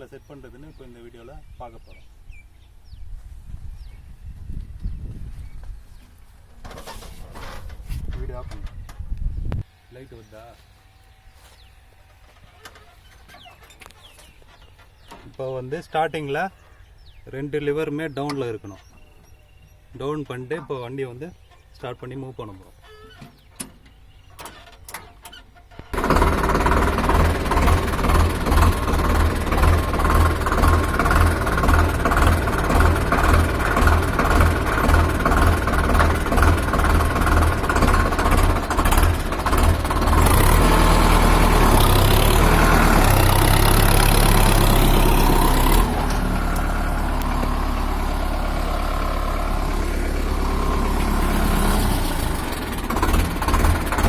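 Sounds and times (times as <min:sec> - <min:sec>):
tractor engine idling and revving: 0:23.2 - 0:54.0.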